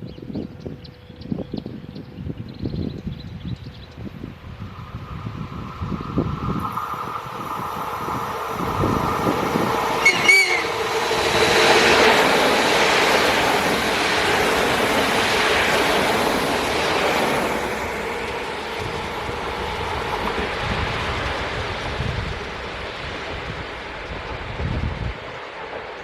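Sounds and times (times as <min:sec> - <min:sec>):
train wheels running past: 0:04.5 - 0:26.0
train horn blast: 0:10.0 - 0:11.0.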